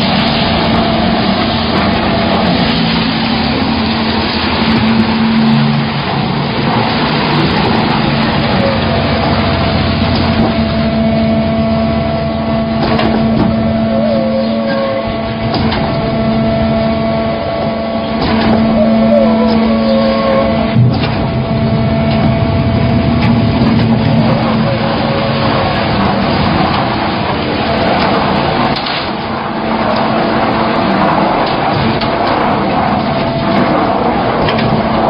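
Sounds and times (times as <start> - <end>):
concrete pump machine running: 0.0 - 35.0
sharp knocks: 12.8 - 13.6.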